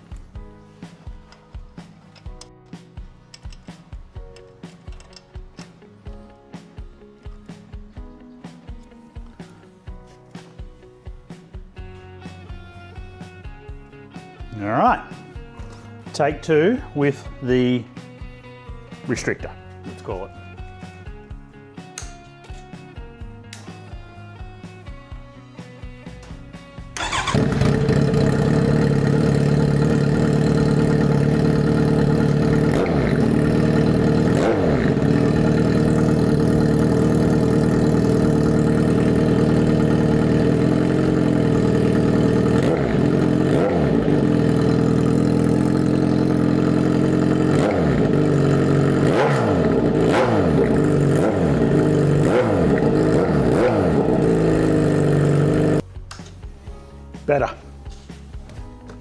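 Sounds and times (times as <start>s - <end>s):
motorcycle engine idling: 21.9s - 55.8s.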